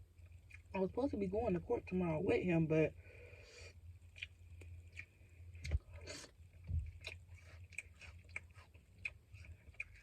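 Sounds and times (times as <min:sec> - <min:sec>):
low steady hum: 0:00.0 - 0:10.0
wet chewing with mouth clicks: 0:00.2 - 0:00.7, 0:04.0 - 0:10.0.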